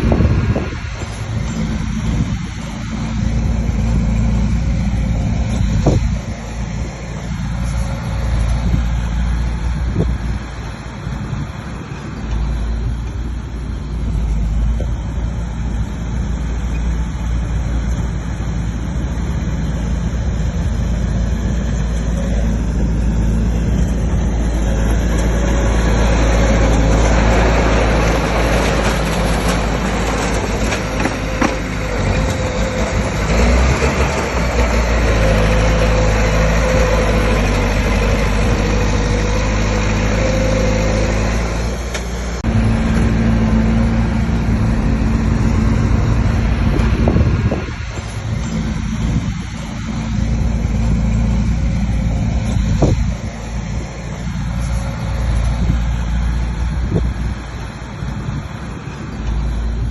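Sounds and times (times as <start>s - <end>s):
heavy diesel machine running: 0.0s - 59.9s.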